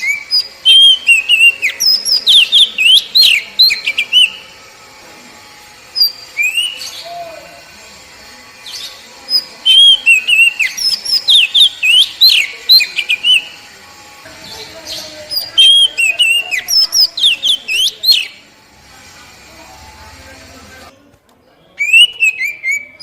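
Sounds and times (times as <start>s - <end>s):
magpie-robin whistled song: 0.0s - 4.4s, 6.0s - 7.0s, 8.7s - 13.5s, 21.8s - 23.0s.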